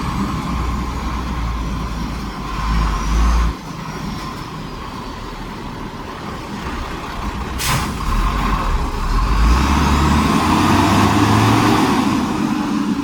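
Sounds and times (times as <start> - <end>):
diesel engine rumbling: 0.0 - 13.0
short hiss: 7.6 - 8.0.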